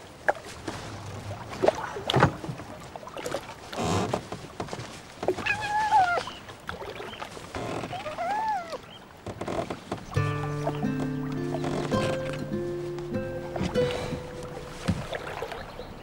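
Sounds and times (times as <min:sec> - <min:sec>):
fox cub whining: 0:05.4 - 0:06.4
rucksack rustling and knocks: 0:09.2 - 0:15.4.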